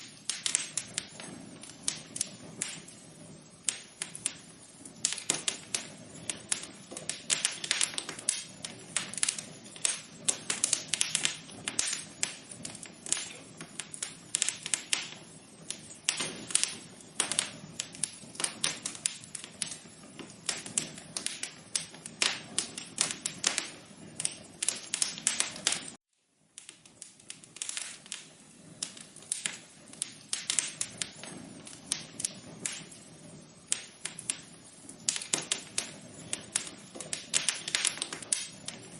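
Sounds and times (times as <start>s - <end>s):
fireplace fire crackling: 0.0s - 38.9s.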